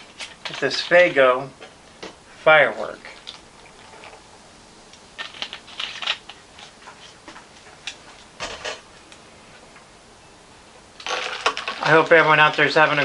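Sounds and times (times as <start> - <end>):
soda pouring: 2.5 - 4.5, 11.0 - 13.0
glass and container clinking: 11.0 - 12.1.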